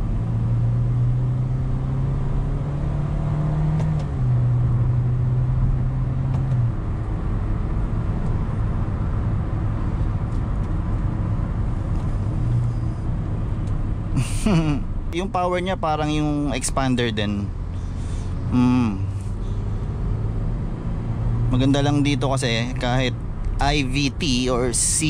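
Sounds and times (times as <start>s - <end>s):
tyre and road noise: 0.0s - 25.0s
car engine pulling hard: 16.1s - 25.0s.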